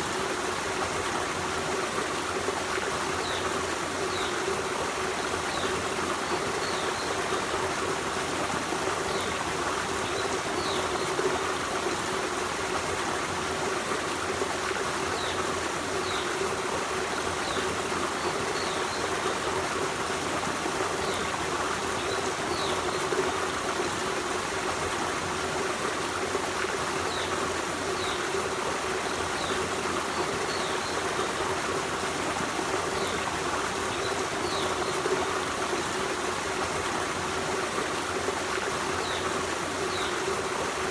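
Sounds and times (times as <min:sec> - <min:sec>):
stream trickling over rocks: 0:00.0 - 0:40.9.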